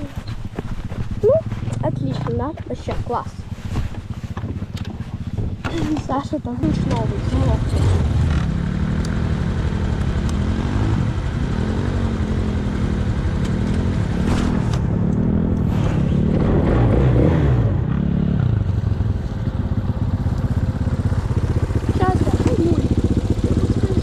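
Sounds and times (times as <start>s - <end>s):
off-road vehicle engine revving: 5.6s - 24.0s.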